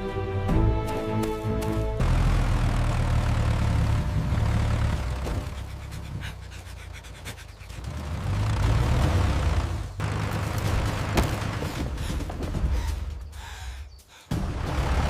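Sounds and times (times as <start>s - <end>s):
music: 0.0s - 2.2s, 12.5s - 15.0s
low vehicle engine rumble: 1.4s - 13.4s.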